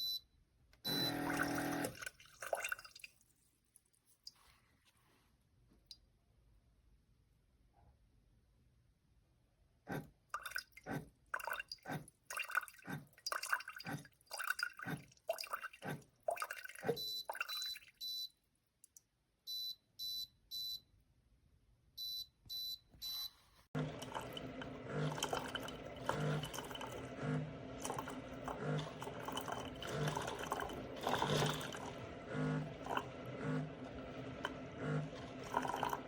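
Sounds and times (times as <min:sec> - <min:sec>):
coffee maker sputtering and dripping: 0:00.8 - 0:02.8, 0:09.9 - 0:18.2, 0:23.8 - 0:36.0.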